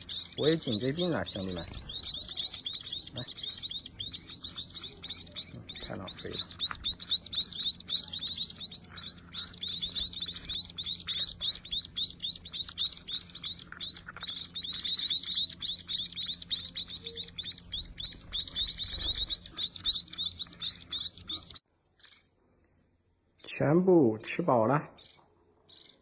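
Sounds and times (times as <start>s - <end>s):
young birds begging chirps: 0.0s - 22.4s, 23.4s - 26.0s.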